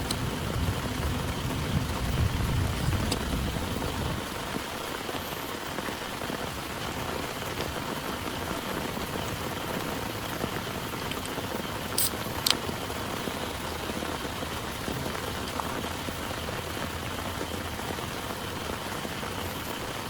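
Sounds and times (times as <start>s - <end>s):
low rumble of thunder: 0.0s - 4.9s
heavy rain pouring: 0.0s - 20.0s.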